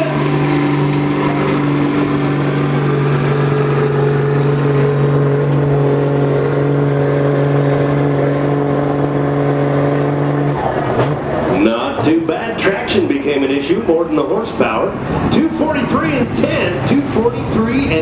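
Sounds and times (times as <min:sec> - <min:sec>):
diesel truck engine at high revs: 0:00.0 - 0:18.0.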